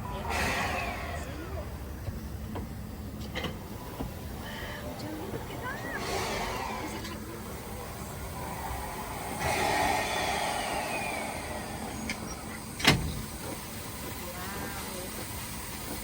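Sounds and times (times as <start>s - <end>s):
steam rushing hiss: 0.1s - 1.9s, 5.7s - 16.0s
tone sliding down: 8.2s - 12.6s.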